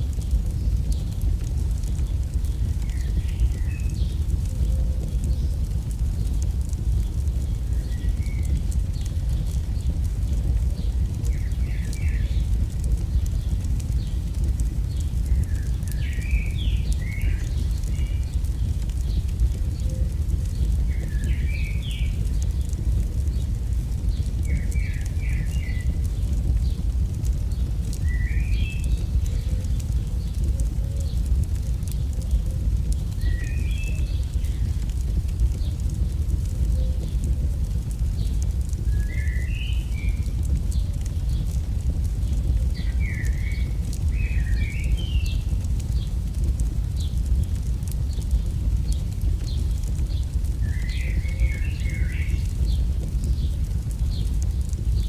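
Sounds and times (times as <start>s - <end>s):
campfire crackling: 0.0s - 55.0s
low rumble: 0.0s - 55.0s
bird chirping: 27.6s - 31.2s, 38.7s - 41.5s, 42.8s - 45.6s, 48.1s - 53.0s.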